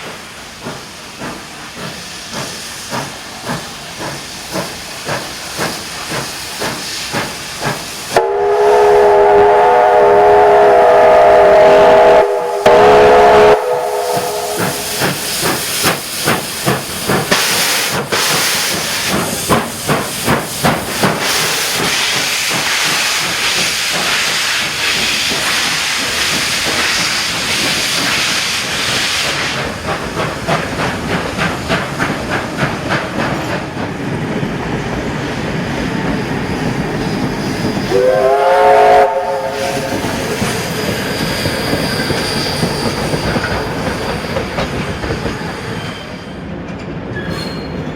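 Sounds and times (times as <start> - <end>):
steam locomotive exhaust beats: 0.0 - 46.2
hissing steam: 0.0 - 46.5
steam whistle blast: 8.1 - 15.2, 37.9 - 40.4.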